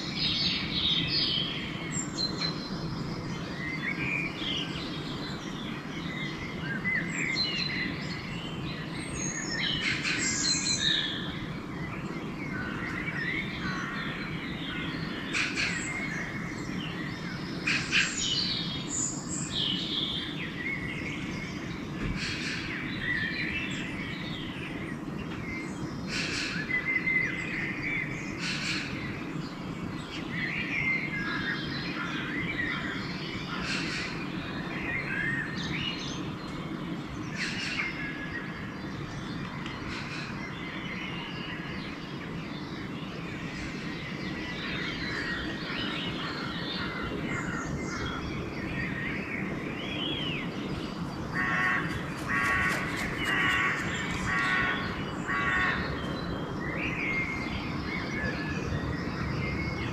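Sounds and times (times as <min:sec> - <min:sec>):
songbirds dawn chorus: 0:00.0 - 0:59.9
steady low background noise: 0:00.0 - 0:59.9.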